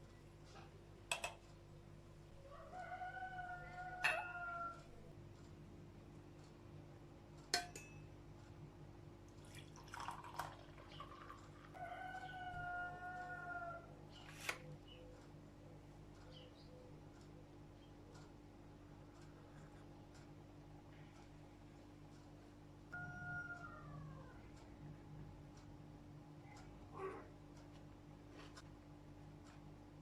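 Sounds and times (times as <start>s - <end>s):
rooster crowing: 2.4s - 5.0s, 11.7s - 13.9s, 23.0s - 24.4s.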